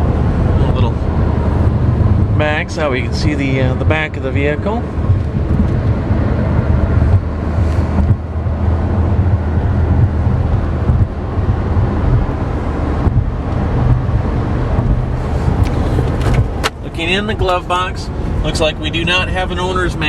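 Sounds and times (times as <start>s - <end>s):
car low rumble: 0.0s - 20.0s
wind on microphone: 4.9s - 17.1s.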